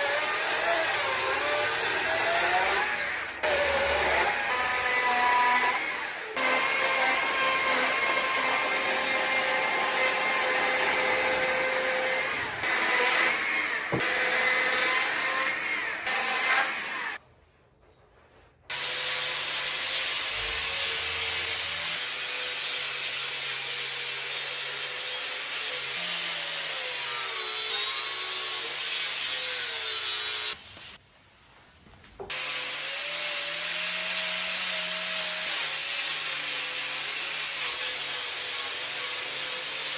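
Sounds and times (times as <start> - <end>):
chainsaw cutting wood: 0.0 - 17.2.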